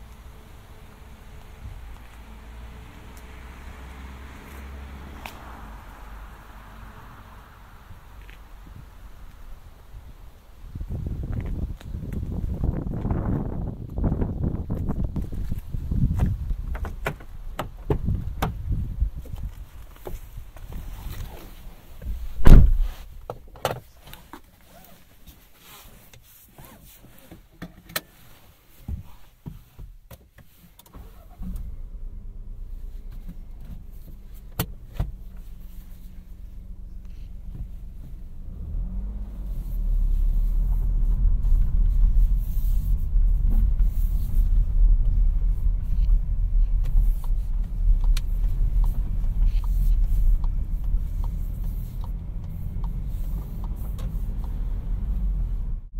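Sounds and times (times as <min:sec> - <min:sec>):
car engine idling: 0:00.0 - 0:24.4, 0:31.0 - 0:55.9
car moving off with low rumble: 0:00.0 - 0:27.5, 0:30.9 - 0:55.9
loud thump: 0:22.0 - 0:23.1.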